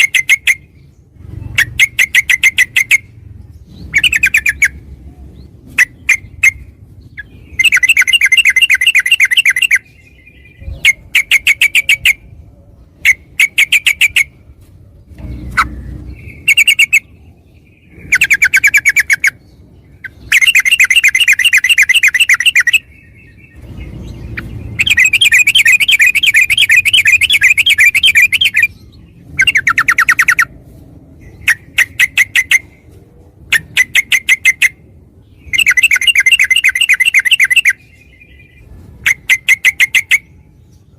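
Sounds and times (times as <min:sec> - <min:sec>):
bulbul song rapid notes: 0:20.3 - 0:22.9, 0:24.4 - 0:28.7, 0:35.5 - 0:37.8.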